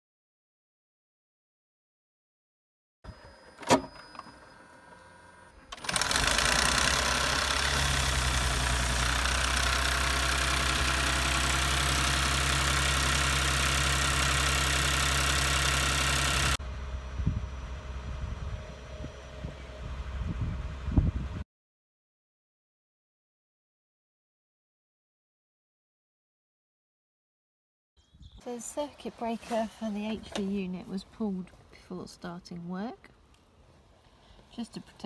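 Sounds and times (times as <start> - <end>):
car engine clattering: 5.8 - 16.6.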